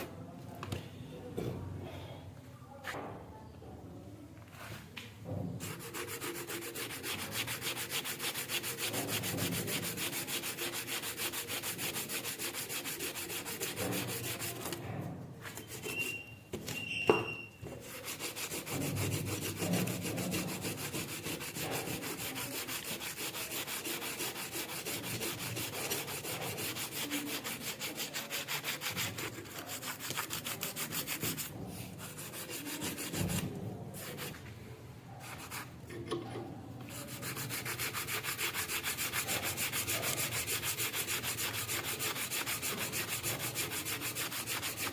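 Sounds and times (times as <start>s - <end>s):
scrubbing rust off metal: 5.6s - 16.2s, 17.7s - 34.4s, 36.9s - 44.9s.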